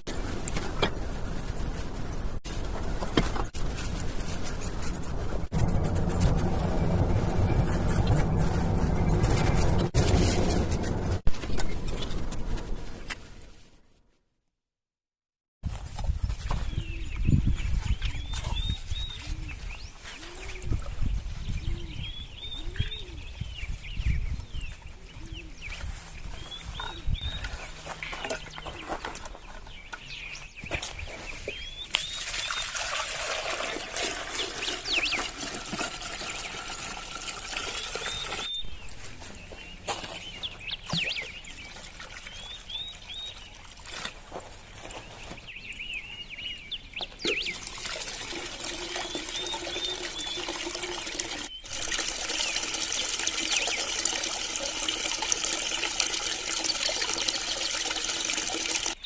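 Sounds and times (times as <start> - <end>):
water trickling and splashing: 31.9 - 39.2, 40.2 - 44.4, 47.2 - 59.0.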